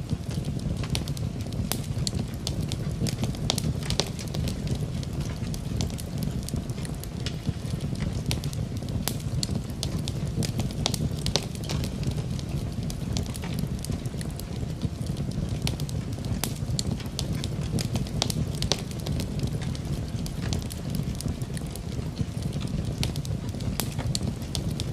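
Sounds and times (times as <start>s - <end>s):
low rumble of rain: 0.0s - 24.9s
wood fire crackling and popping: 0.0s - 24.9s.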